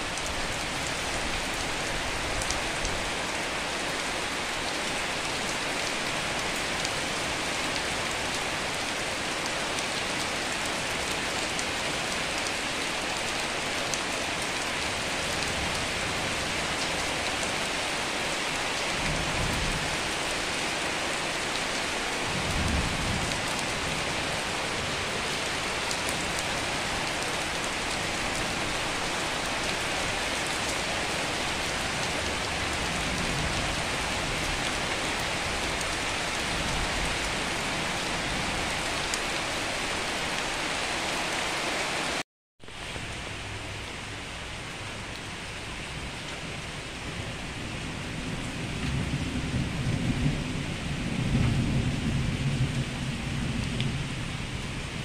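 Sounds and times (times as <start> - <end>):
rain falling: 0.0 - 55.0
low thunder rumbles: 47.1 - 55.0.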